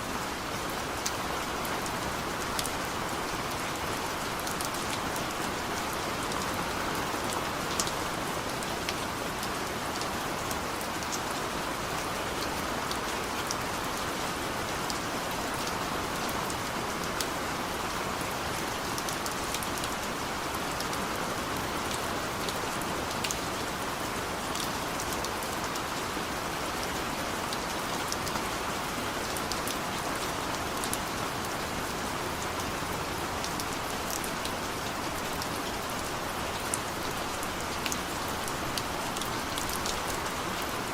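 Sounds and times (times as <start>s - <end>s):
raindrops pattering on surfaces: 0.2s - 40.9s.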